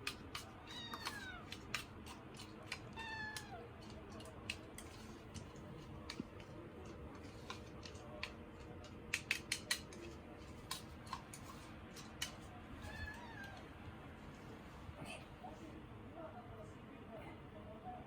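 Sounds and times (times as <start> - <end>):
kitten meowing: 0.7 - 1.5, 2.9 - 3.6, 12.8 - 13.7.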